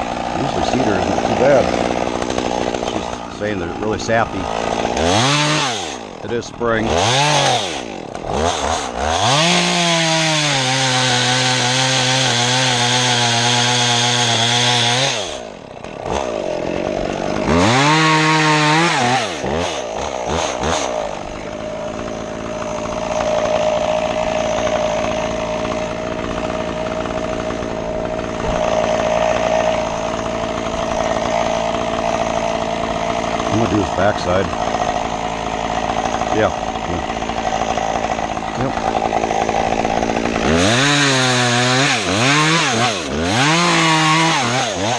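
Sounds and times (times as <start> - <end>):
chainsaw revving and cutting: 0.0 - 44.9.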